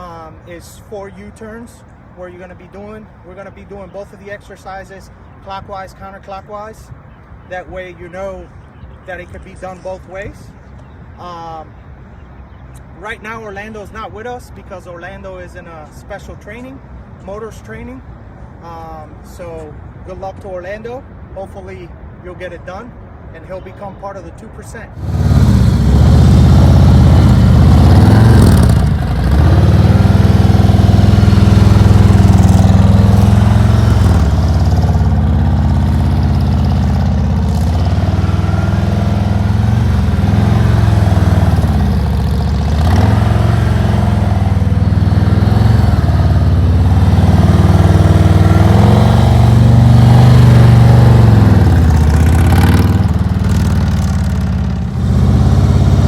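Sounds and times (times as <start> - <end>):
motorcycle engine running: 25.0 - 56.0.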